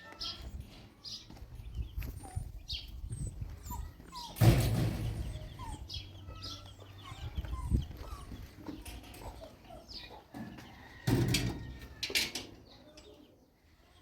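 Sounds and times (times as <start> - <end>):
birds chirping and clucking: 0.0 - 14.0.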